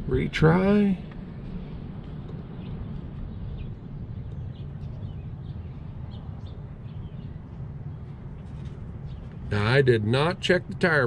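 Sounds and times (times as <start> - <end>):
low outdoor background rumble: 0.0 - 11.0
small birds chirping: 2.5 - 9.8.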